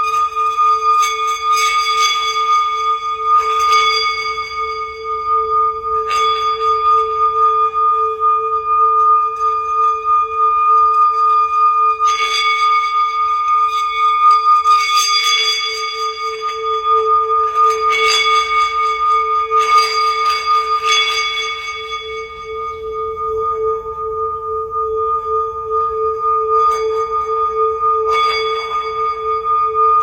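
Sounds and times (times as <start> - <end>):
singing bowls ringing: 0.0 - 30.0
singing bowl strikes: 15.7 - 30.0.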